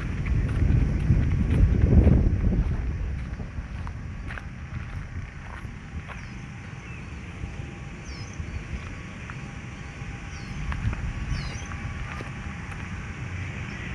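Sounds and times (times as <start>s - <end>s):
low rumble: 0.0s - 13.9s
bird chirps: 6.1s - 7.3s, 8.0s - 11.8s.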